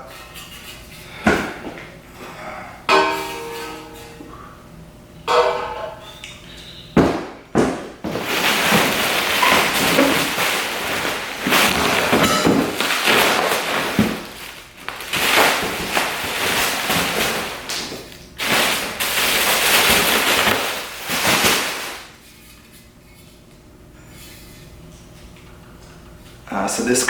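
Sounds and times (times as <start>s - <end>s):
metal pipes clunking: 2.9s - 4.5s, 5.2s - 16.2s
sharp knocks: 7.0s - 8.2s
packaging rustling: 8.0s - 22.2s.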